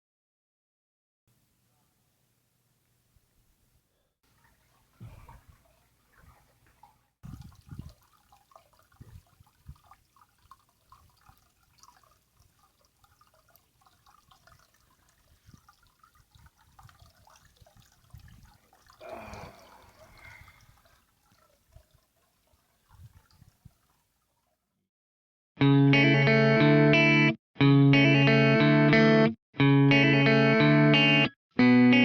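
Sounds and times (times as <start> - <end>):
water drips and gurgles: 4.2 - 24.8
rush of water: 4.3 - 24.1.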